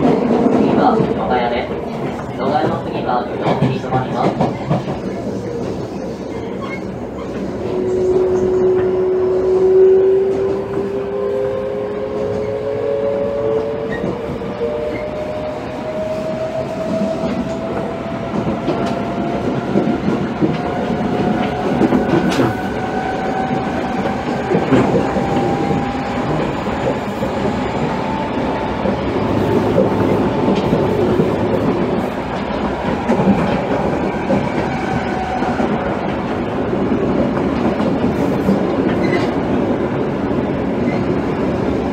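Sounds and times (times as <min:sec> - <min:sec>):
subway train motor whine: 0:07.2 - 0:41.9
rail-joint clicks: 0:16.9 - 0:36.3, 0:37.1 - 0:39.4.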